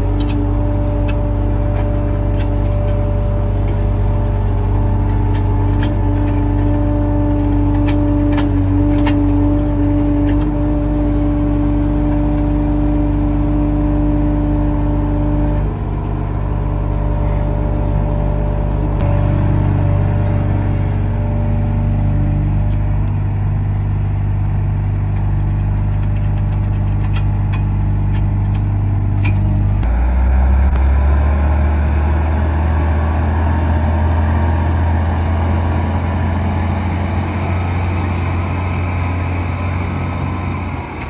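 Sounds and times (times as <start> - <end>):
heavy diesel engine running: 0.0 - 41.0.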